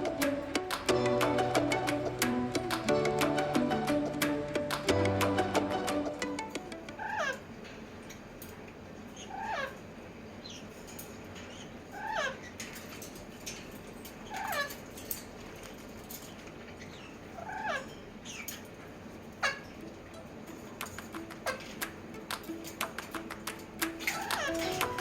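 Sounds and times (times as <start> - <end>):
parrot calling: 0.0 - 7.5, 9.2 - 9.8, 22.9 - 25.0.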